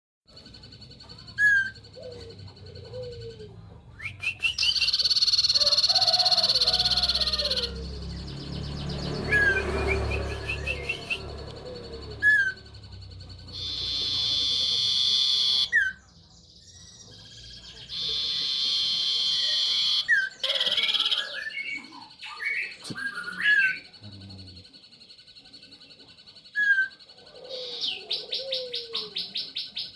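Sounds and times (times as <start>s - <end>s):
bird singing: 0.3s - 29.9s
sharp loud bird whistle: 4.0s - 7.7s, 9.2s - 11.2s, 13.5s - 16.0s, 17.9s - 21.6s
bird fast pulsing trill: 4.2s - 16.0s.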